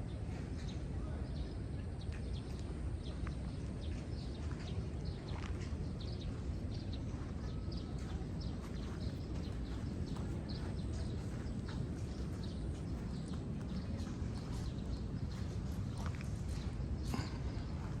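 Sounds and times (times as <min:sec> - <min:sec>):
steady low rumble: 0:02.4 - 0:18.0
footsteps on hard path: 0:08.0 - 0:16.6.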